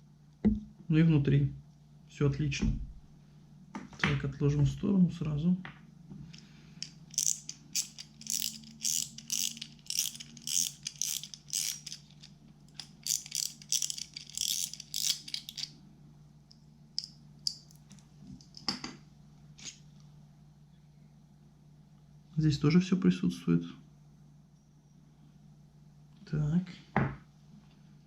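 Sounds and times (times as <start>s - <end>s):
small metal reel parts clicking: 6.8s - 15.7s.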